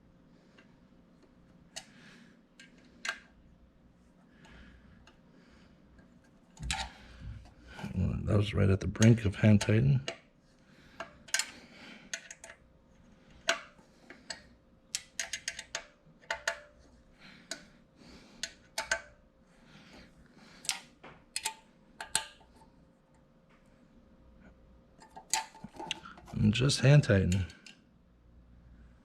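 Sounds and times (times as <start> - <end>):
metal parts clicking and clinking: 15.0 - 16.7.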